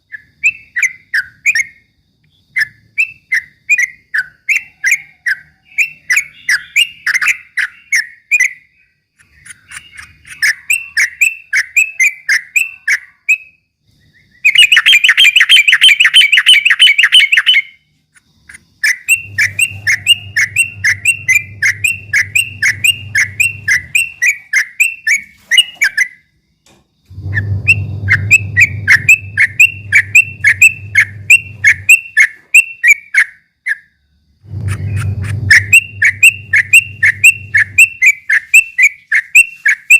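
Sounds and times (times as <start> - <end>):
bulbul singing whistled notes: 0.1 - 17.8, 18.8 - 26.3, 27.2 - 33.4, 34.5 - 39.9
low hum: 19.1 - 24.3, 27.1 - 32.0, 34.3 - 38.1.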